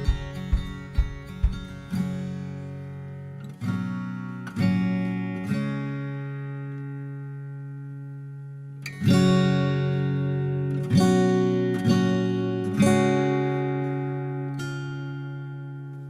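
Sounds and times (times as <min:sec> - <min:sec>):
acoustic guitar strums and chords: 0:00.0 - 0:16.0.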